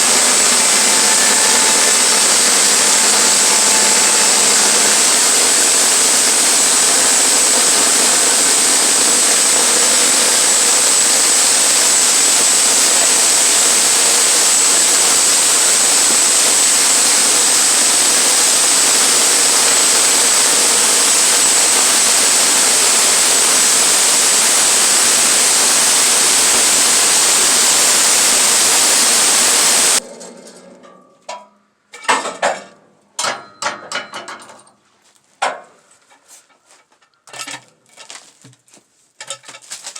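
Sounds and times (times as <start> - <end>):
sawmill cutting with whine: 0.0 - 30.0.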